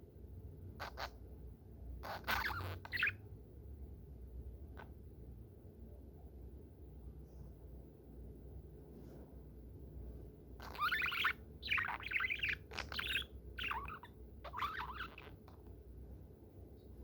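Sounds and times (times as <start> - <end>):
budgerigar chattering: 0.8 - 1.2, 2.0 - 3.2, 10.6 - 15.7.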